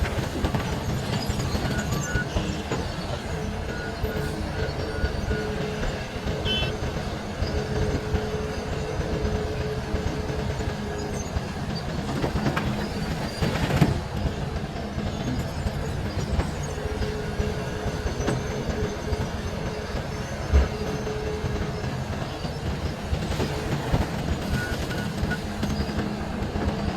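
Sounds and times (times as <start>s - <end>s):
excavator engine and hydraulics rumbling: 0.0s - 26.9s
whining hydraulic tone: 0.0s - 26.9s.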